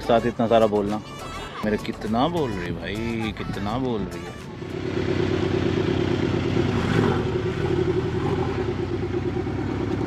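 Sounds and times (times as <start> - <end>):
street traffic: 0.0 - 10.0
sports car engine running: 4.2 - 10.0.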